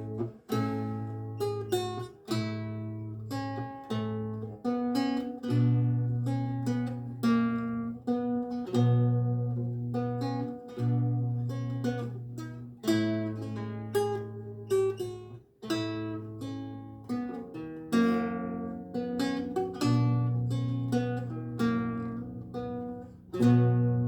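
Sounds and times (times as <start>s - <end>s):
lute playing: 0.0s - 24.0s.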